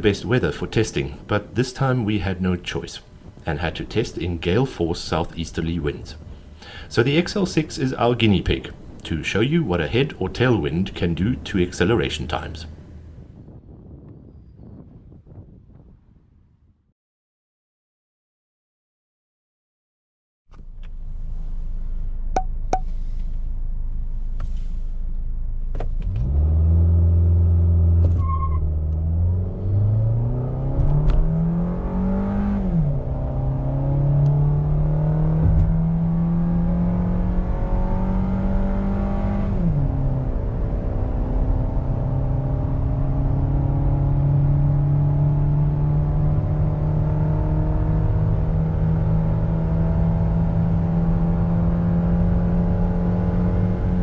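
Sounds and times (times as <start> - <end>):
car engine accelerating: 20.6 - 54.0.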